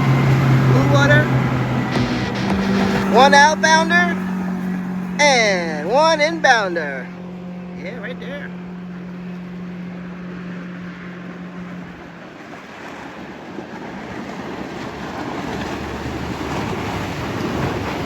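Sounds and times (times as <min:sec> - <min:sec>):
steady low hum: 0:00.0 - 0:12.1
boats running: 0:00.0 - 0:18.0
water and waves rushing: 0:00.0 - 0:18.0.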